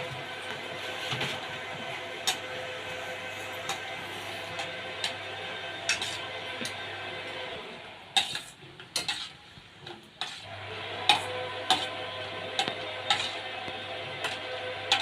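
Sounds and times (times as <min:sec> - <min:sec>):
metal ladle scraping a pan: 0:05.9 - 0:06.3, 0:08.2 - 0:09.4, 0:10.2 - 0:10.5, 0:11.1 - 0:12.0, 0:12.6 - 0:15.0
chillies sizzling in hot oil: 0:11.1 - 0:15.0.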